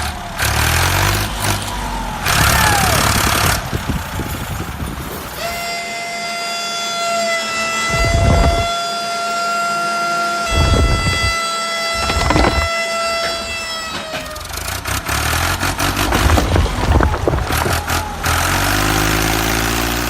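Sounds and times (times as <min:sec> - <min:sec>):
long steady horn-like tone: 0:05.3 - 0:15.4
motor running: 0:10.5 - 0:13.4.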